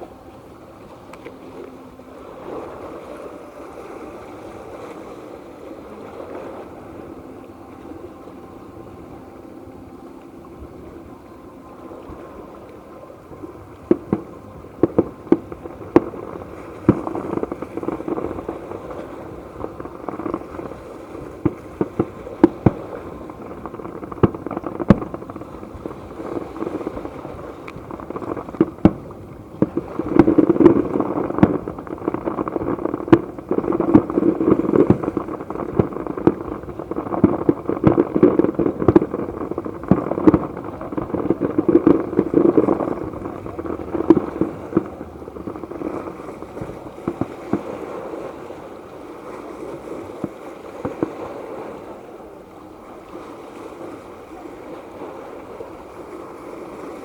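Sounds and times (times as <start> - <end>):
firework shells bursting: 19.7 - 47.7.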